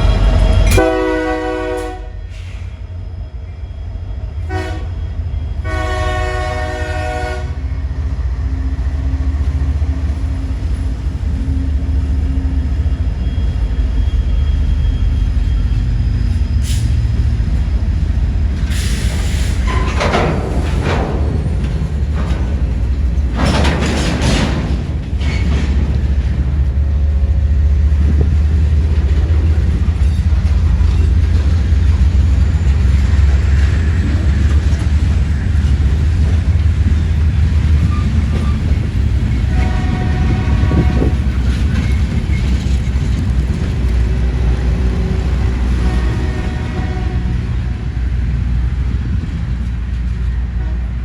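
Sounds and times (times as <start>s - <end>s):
train rumbling past: 0.0s - 51.0s
train horn chord: 0.6s - 2.3s, 4.5s - 4.9s, 5.6s - 7.6s, 39.5s - 41.2s, 45.1s - 47.8s.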